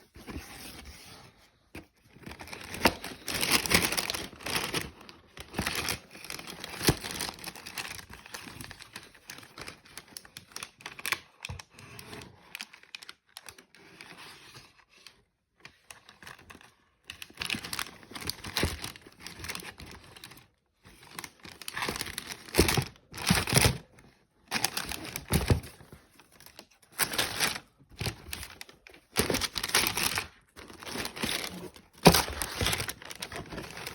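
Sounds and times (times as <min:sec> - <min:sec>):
paper and cardboard crinkling: 0:00.1 - 0:11.2, 0:17.2 - 0:23.9, 0:24.5 - 0:33.9.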